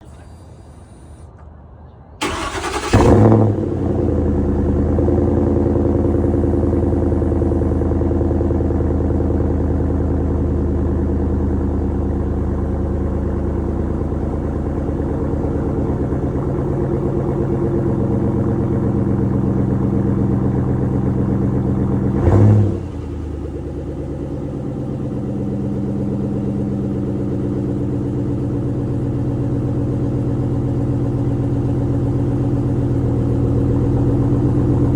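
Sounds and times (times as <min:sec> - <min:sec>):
truck engine idling: 0:00.0 - 0:34.9
engine cranking: 0:02.2 - 0:03.3
engine revving: 0:02.2 - 0:08.2, 0:15.5 - 0:23.7.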